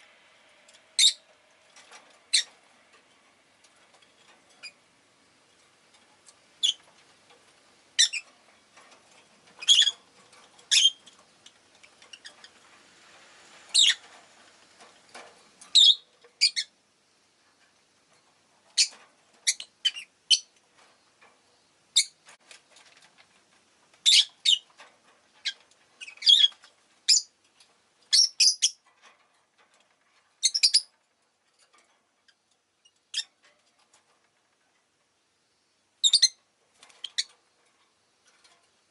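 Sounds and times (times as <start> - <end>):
faint low background noise: 0.0 - 38.9
lovebirds chirping: 1.0 - 1.3, 8.0 - 8.3, 9.6 - 12.6, 13.7 - 14.1, 15.7 - 16.8, 18.8 - 20.6, 24.0 - 24.7, 25.4 - 27.3, 28.1 - 28.8, 30.4 - 30.9, 36.0 - 37.3.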